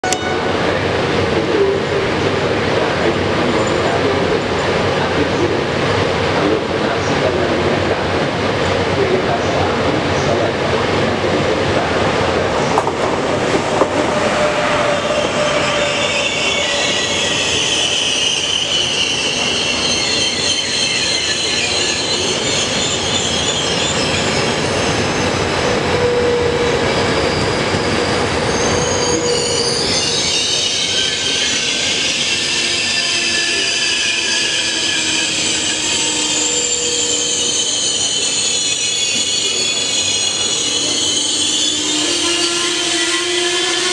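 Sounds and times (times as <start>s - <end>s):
train coaches rumbling over rails: 0.0s - 43.9s
high metallic wheel squeal: 14.0s - 43.9s.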